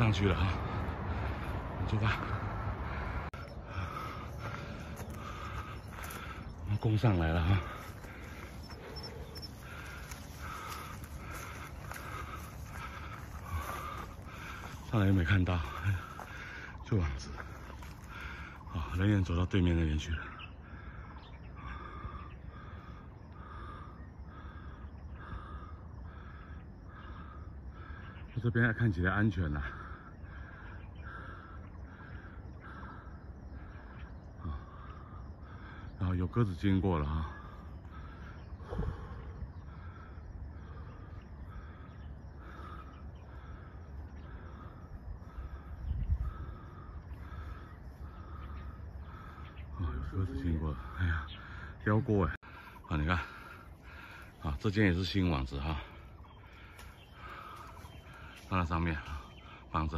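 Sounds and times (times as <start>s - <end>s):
steady low rumble: 0.0s - 18.6s
bird calling: 0.0s - 59.9s
person panting hard: 0.6s - 6.6s, 7.6s - 14.9s, 37.4s - 49.7s, 52.4s - 54.4s, 55.8s - 58.5s.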